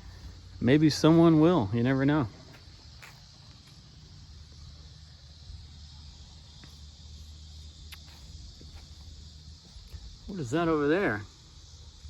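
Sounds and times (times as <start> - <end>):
high insect drone: 0.0 - 12.0
faint ticks: 7.8 - 8.2.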